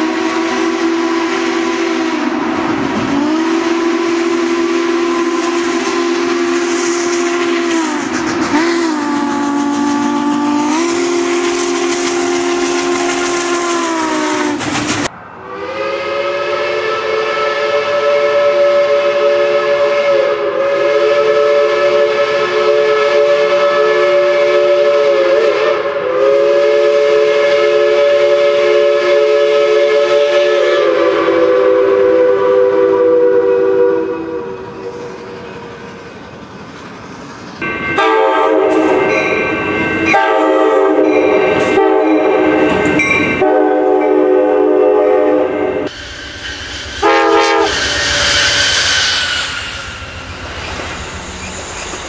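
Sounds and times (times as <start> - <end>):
steam locomotive whistle: 0.0 - 36.1, 37.6 - 52.0
hiss of steam: 3.0 - 15.1, 45.9 - 52.0
multi-note chime train whistle: 3.2 - 14.4, 15.4 - 36.1, 37.6 - 52.0.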